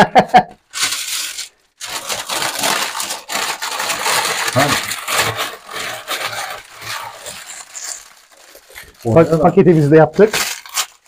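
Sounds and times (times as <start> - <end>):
aluminium foil crinkling: 0.6 - 11.0.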